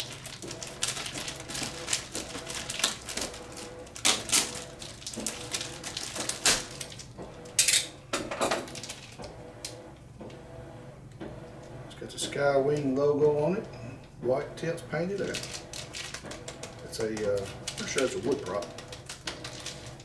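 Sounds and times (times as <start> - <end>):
packaging rustling and scraping: 0.0 - 9.8, 14.9 - 20.0.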